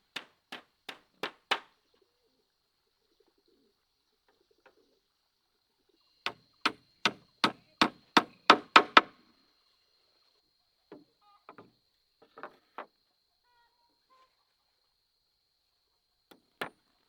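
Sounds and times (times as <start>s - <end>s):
hand tool knocks: 0.1s - 1.6s.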